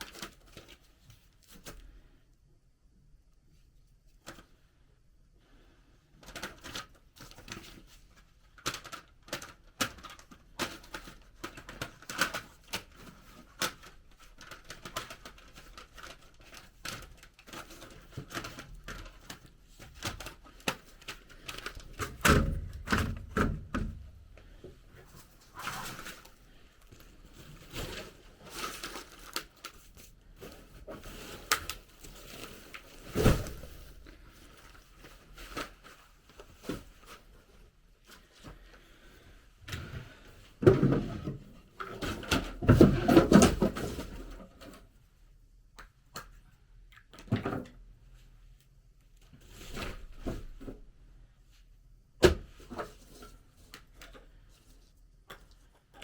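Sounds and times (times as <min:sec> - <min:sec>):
objects being handled: 0:06.2 - 0:38.8.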